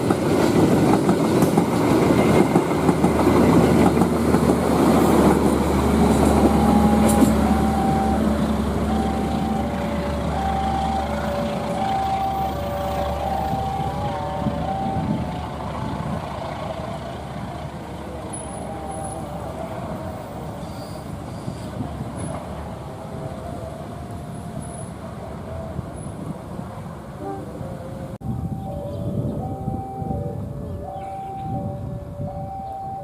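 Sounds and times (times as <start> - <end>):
train rumbling past: 0.0 - 33.0
two-tone warning beeps: 6.4 - 15.2, 28.2 - 33.0.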